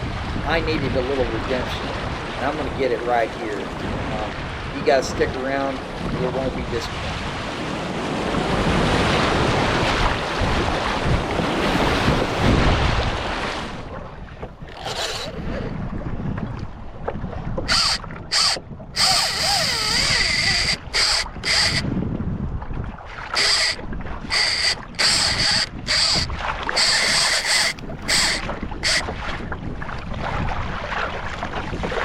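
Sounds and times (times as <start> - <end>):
rushing sea water: 0.0 - 32.0
wind buffeting microphone: 0.0 - 32.0
short high-pitched wavering bursts: 17.7 - 21.8, 23.4 - 29.0.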